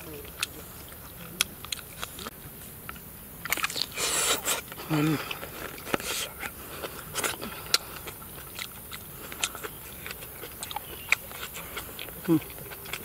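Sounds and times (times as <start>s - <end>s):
man chewing food: 0.0s - 13.0s
mouth clicks and smacks: 2.9s - 13.0s.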